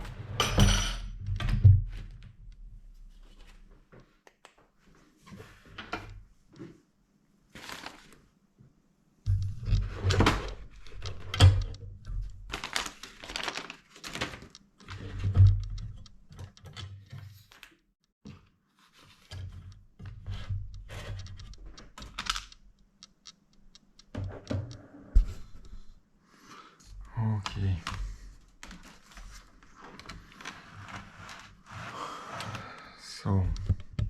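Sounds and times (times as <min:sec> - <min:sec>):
laptop parts clicking and tapping: 0:09.3 - 0:17.7, 0:19.2 - 0:25.9.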